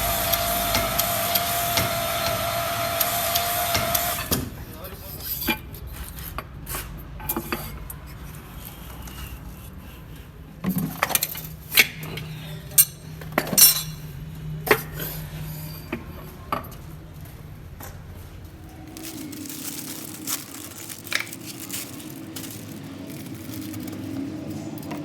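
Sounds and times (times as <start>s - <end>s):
metal tools clinking and knocking: 12.8s - 14.1s.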